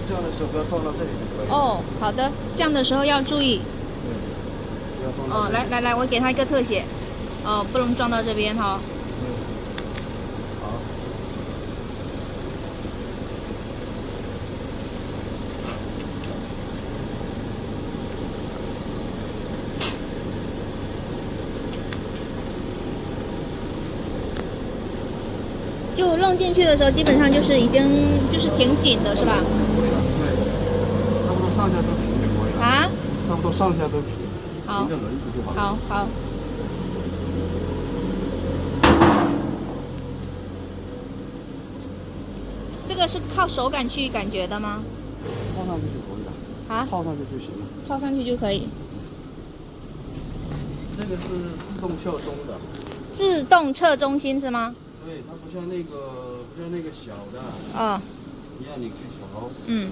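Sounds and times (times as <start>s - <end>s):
workshop machinery hum: 0.0s - 59.9s
low machine hum: 31.3s - 59.9s
metal clunk with ring: 38.8s - 40.0s.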